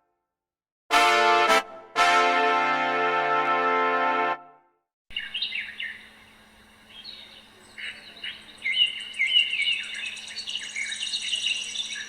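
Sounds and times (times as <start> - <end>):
small birds chirping: 5.1 - 12.0.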